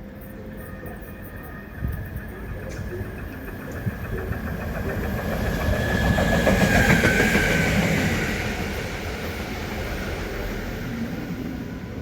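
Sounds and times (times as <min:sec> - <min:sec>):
train passing: 0:00.0 - 0:12.0
train wheel clatter: 0:01.9 - 0:08.6.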